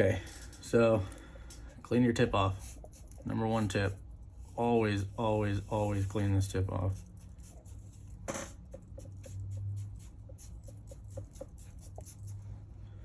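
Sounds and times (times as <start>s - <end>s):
soldering tip scraping on sponge: 6.8s - 12.4s.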